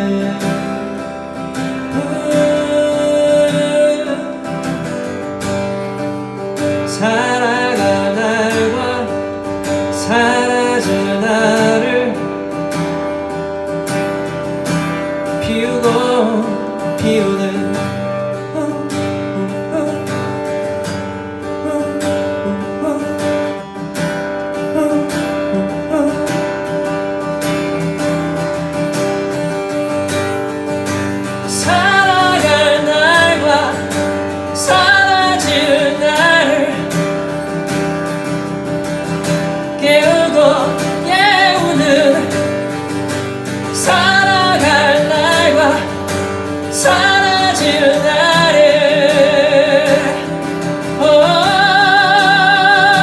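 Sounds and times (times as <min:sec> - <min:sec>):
person singing: 0:00.0 - 0:04.9, 0:06.8 - 0:12.4, 0:15.4 - 0:20.7, 0:21.4 - 0:23.6, 0:24.5 - 0:26.6, 0:31.2 - 0:37.5, 0:39.6 - 0:53.0
acoustic guitar strumming: 0:00.0 - 0:53.0.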